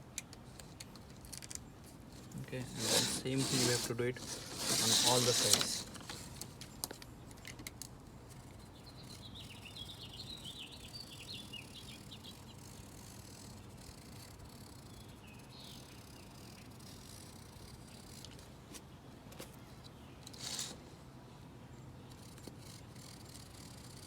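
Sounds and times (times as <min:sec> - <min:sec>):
small bird chirping: 0:08.3 - 0:18.2.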